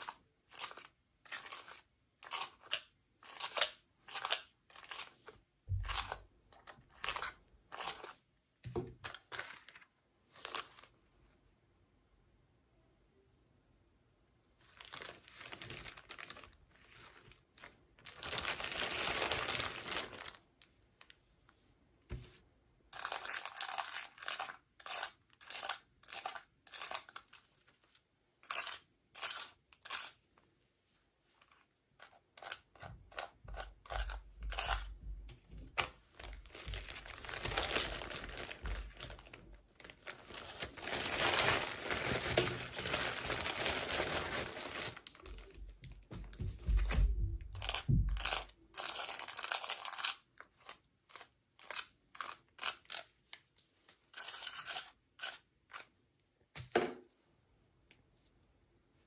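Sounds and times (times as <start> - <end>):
packaging crinkling: 14.7 - 20.5, 35.8 - 46.0
packaging ripping: 14.8 - 16.6, 17.6 - 20.4, 36.3 - 45.2.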